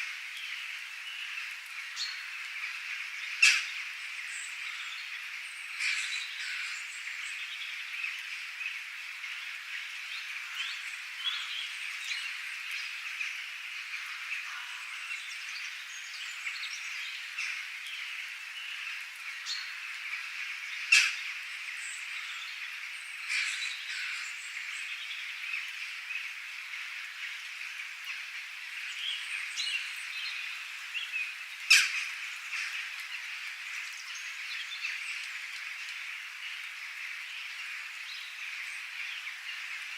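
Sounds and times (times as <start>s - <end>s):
birds chirping chorus: 0.0s - 39.9s
sharp loud bird calls: 28.9s - 35.1s.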